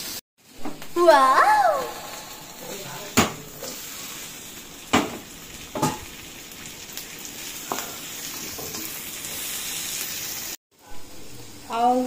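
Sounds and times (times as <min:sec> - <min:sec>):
vegetables sizzling in a wok: 0:00.0 - 0:12.0
knocks against wok: 0:03.2 - 0:03.4, 0:04.9 - 0:05.2.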